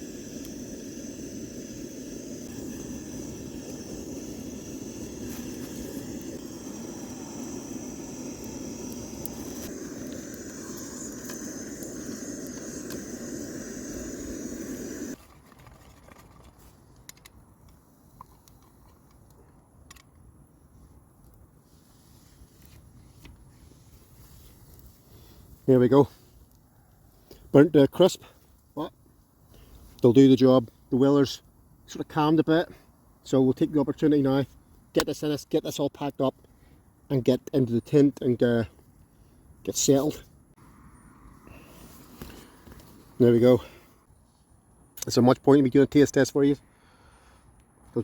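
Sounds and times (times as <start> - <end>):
gas stove flame hissing: 0.0 - 15.2.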